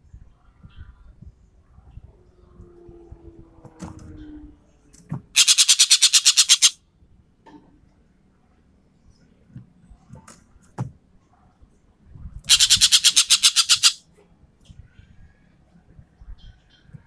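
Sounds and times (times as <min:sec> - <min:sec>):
bird calling with rattling burst: 0:05.4 - 0:06.8, 0:12.5 - 0:14.0.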